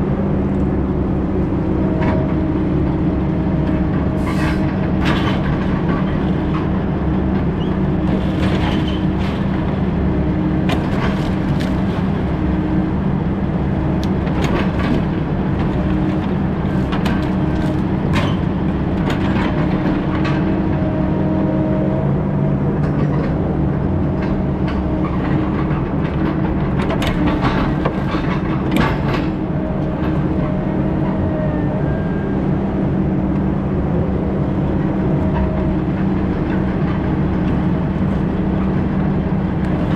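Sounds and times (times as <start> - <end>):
diesel engine running: 0.0 - 39.9
machine clanks and knocks: 16.8 - 20.7, 24.1 - 31.2.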